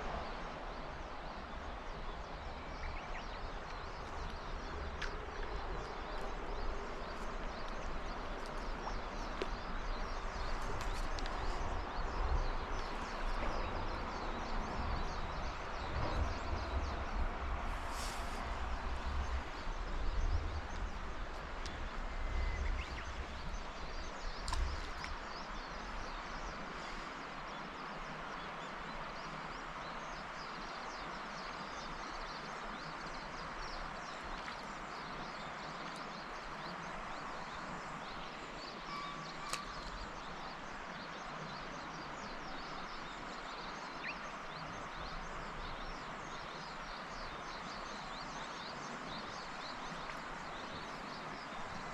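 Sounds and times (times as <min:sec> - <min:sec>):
river water rushing: 0:20.8 - 0:51.9.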